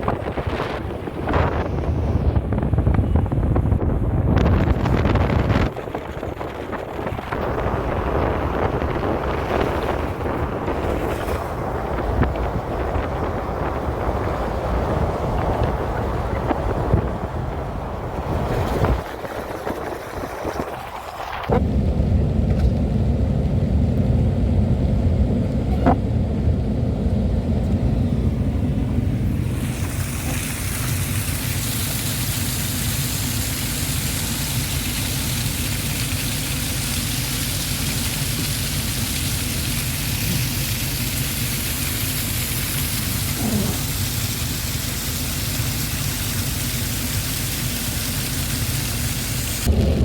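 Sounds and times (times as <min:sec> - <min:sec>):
low rumble: 0:00.0 - 0:47.4, 0:49.5 - 0:50.0
rushing hiss of water: 0:29.2 - 0:50.0.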